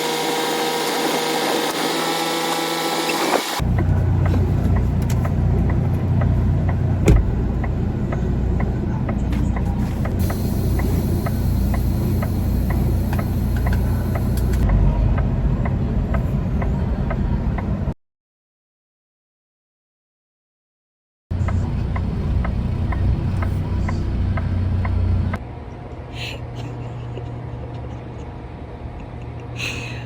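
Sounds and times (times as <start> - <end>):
diesel truck engine rumbling: 0.0 - 17.9, 21.3 - 25.4
regular clicking: 10.0 - 14.7
high hiss: 10.2 - 14.6.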